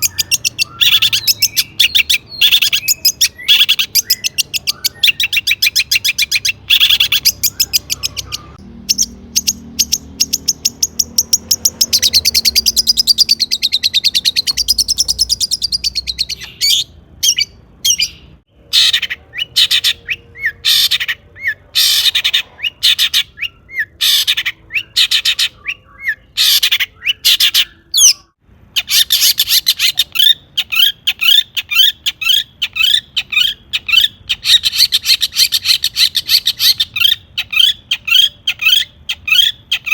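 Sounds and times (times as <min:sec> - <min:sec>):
shrike singing: 0:00.0 - 0:31.8.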